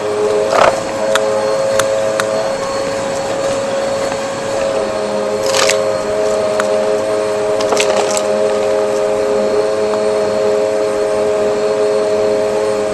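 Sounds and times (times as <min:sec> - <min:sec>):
vacuum cleaner running: 0:00.0 - 0:12.9.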